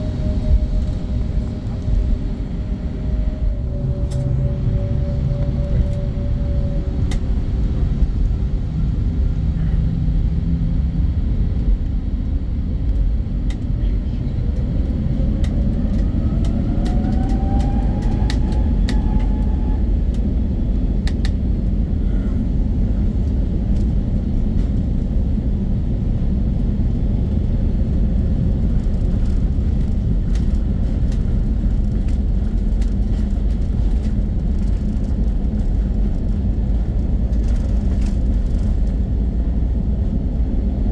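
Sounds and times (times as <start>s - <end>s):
engine whine rising in pitch: 0.0s - 9.3s, 14.9s - 20.1s
jet engine rumble in cabin: 0.0s - 40.9s.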